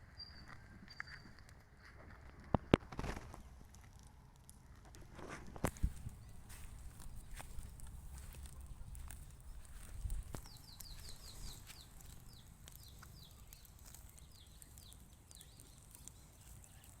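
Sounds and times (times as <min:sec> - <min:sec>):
small bird chirping: 0:00.0 - 0:02.0, 0:05.8 - 0:17.0
sharp clicks: 0:02.5 - 0:17.0.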